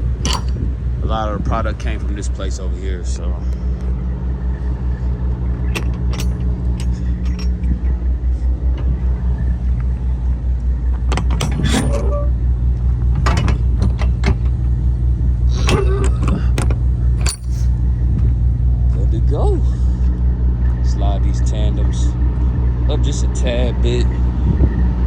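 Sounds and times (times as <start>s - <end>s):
jingling rattles: 0.0s - 1.0s, 4.9s - 18.1s
diesel truck engine throbbing: 0.0s - 25.0s.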